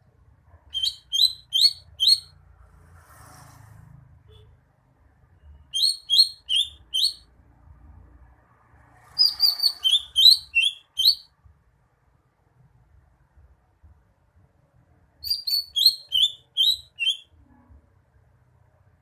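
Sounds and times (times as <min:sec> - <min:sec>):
bird singing sharp chirps: 0:00.7 - 0:02.4, 0:05.5 - 0:07.3, 0:09.1 - 0:11.3, 0:15.2 - 0:17.3.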